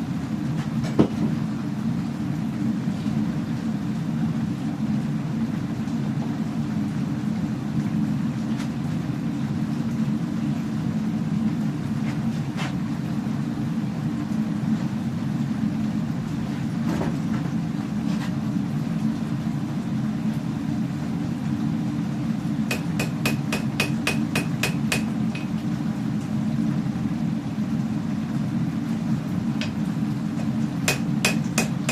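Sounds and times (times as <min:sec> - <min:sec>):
hammer ringing on anvil: 0:30.9 - 0:31.9.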